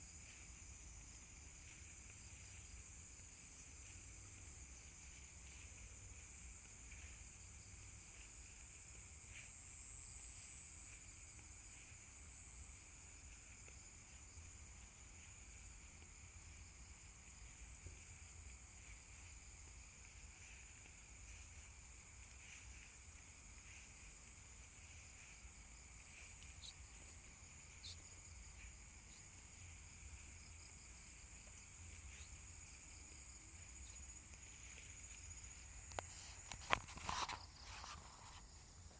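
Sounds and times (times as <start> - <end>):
insects chirring high-pitched drone: 0.0 - 38.9
faint ticks: 17.4 - 38.9
soft pulsing lower chirr: 24.6 - 35.2.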